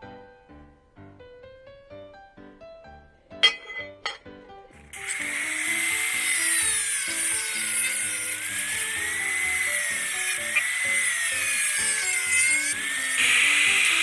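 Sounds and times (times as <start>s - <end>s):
background music: 0.0s - 14.0s
high-speed power tool whine: 4.8s - 14.0s.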